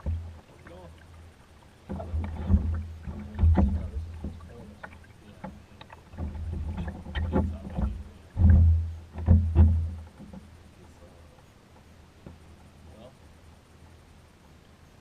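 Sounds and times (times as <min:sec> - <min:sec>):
low rumbling thumps: 0:00.0 - 0:00.5, 0:01.8 - 0:10.6
knocks against hull: 0:00.0 - 0:00.8, 0:01.8 - 0:10.5
paddle splashes: 0:00.0 - 0:14.8.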